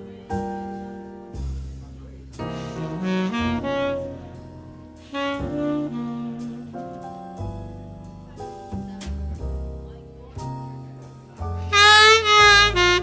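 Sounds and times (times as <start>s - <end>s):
low bass accompaniment: 0.0s - 13.0s
tenor saxophone melody: 2.6s - 7.0s, 11.6s - 13.0s.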